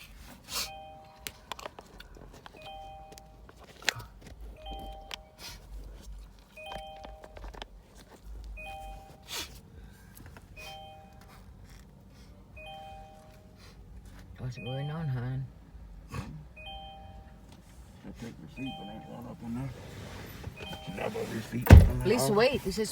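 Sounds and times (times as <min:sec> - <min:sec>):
two-tone electronic beep: 0:04.6 - 0:05.5, 0:08.5 - 0:09.4, 0:10.6 - 0:11.2, 0:12.6 - 0:13.3, 0:14.5 - 0:15.3, 0:16.6 - 0:17.4, 0:18.6 - 0:19.2, 0:20.6 - 0:22.3.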